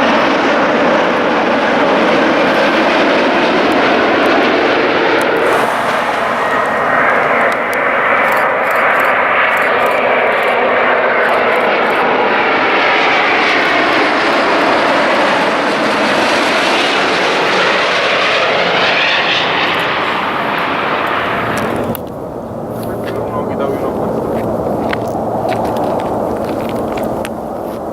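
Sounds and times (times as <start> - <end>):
jet engines roaring: 0.0 - 27.9
faint whining tones: 5.3 - 10.0.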